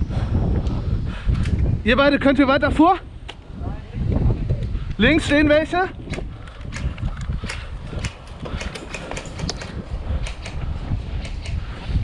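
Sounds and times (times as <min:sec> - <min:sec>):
wind buffeting microphone: 0:00.0 - 0:12.0
sharp clicks: 0:06.1 - 0:10.6.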